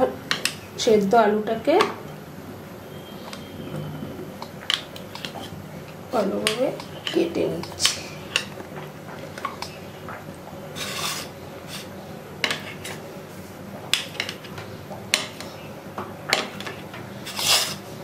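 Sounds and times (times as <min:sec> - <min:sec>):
knife scraping plate: 0:10.8 - 0:11.9, 0:12.5 - 0:13.0, 0:16.6 - 0:17.9.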